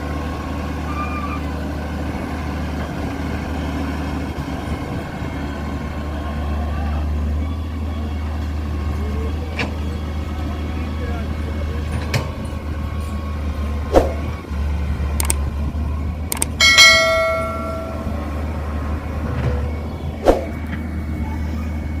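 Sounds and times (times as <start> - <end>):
ringing metal clang: 16.5 - 18.5.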